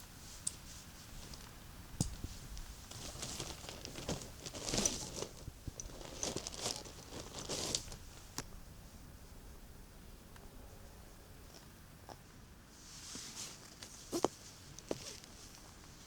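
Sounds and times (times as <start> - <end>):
material crinkling and rustling: 2.2 - 8.3.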